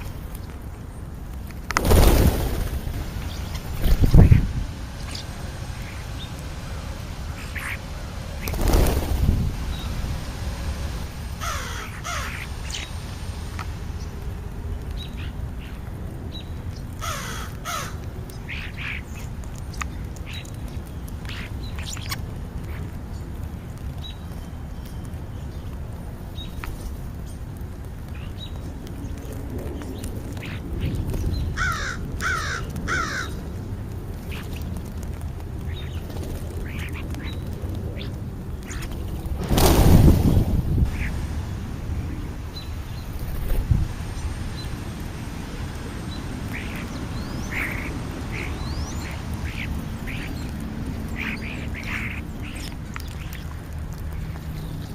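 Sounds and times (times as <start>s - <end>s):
low outdoor rumble: 0.0s - 54.9s
crows cawing: 11.4s - 12.5s, 17.0s - 18.0s, 31.6s - 33.4s.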